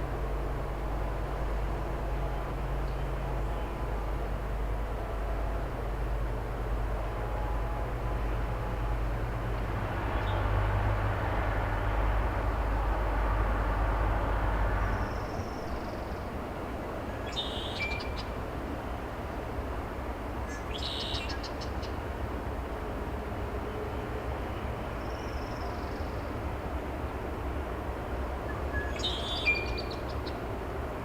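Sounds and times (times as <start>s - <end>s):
excavator diesel engine rumble: 0.0s - 20.8s
bird calls: 28.5s - 30.4s.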